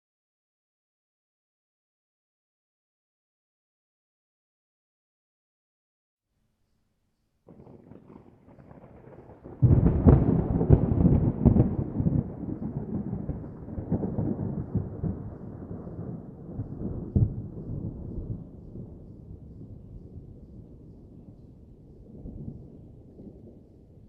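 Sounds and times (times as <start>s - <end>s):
thunder rumbling and crashing: 7.5s - 21.4s.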